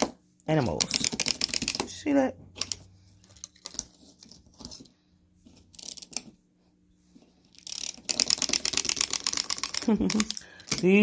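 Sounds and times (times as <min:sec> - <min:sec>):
wind-up toy mechanism clicking: 0:00.8 - 0:01.8, 0:07.5 - 0:10.9.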